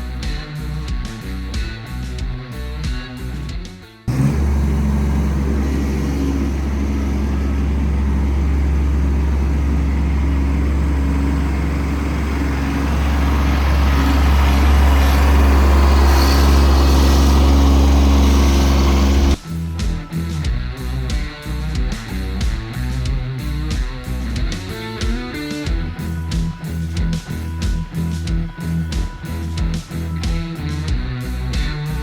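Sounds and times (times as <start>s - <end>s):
tractor diesel engine running: 4.1s - 19.4s.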